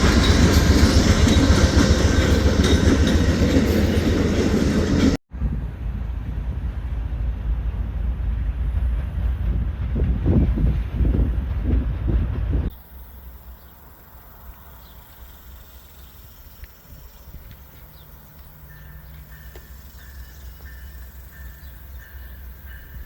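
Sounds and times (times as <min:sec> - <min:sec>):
loud wind: 0:00.0 - 0:12.8
train noise: 0:00.0 - 0:23.0
high chirping: 0:12.7 - 0:23.0.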